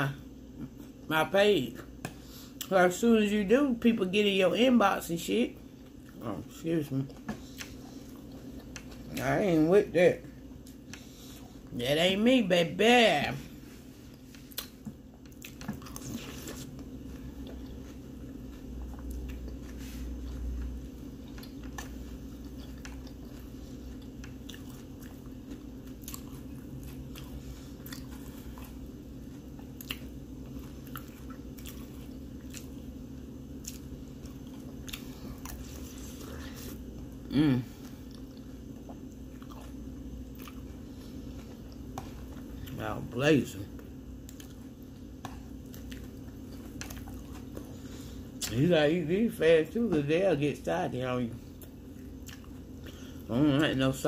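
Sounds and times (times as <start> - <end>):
person chewing cereal: 5.7 - 9.8, 13.3 - 49.8, 51.3 - 53.8.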